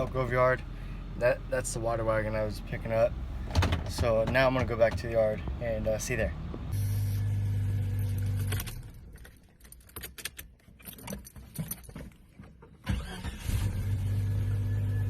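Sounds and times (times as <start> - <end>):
vehicle engine hum: 0.0 - 15.0
small clicks and jingles: 8.4 - 12.8.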